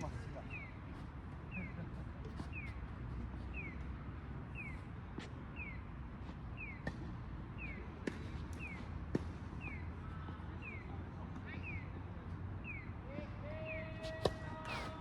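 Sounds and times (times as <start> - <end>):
tennis balls struck by rackets: 6.7 - 9.8, 14.0 - 15.0.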